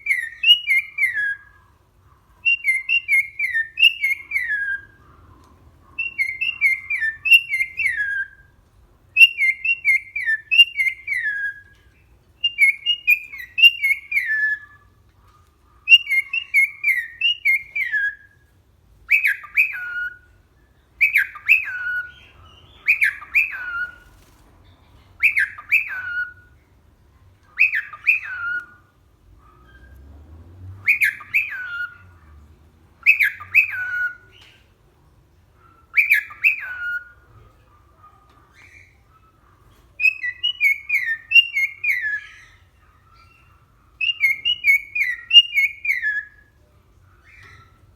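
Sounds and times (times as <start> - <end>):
cockatiel whistling: 0.0 - 1.5, 2.4 - 5.0, 6.0 - 8.5, 9.2 - 11.8, 12.4 - 14.9, 15.9 - 18.4, 19.1 - 20.3, 21.0 - 24.1, 25.2 - 26.4, 27.6 - 28.8, 30.8 - 32.1, 33.0 - 34.6, 35.9 - 37.2, 40.0 - 46.5.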